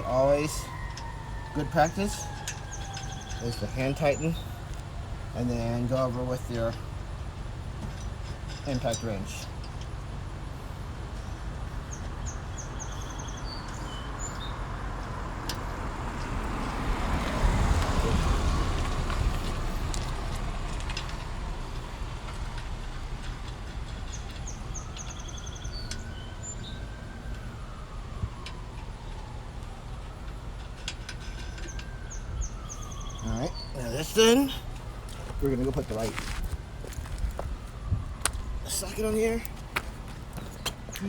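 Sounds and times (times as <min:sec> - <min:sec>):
passing vehicles: 0:00.0 - 0:41.0.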